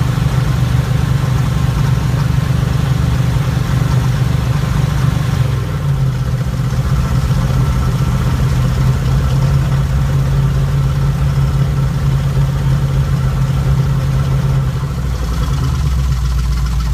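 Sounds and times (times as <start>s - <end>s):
van engine idling: 0.0s - 16.9s.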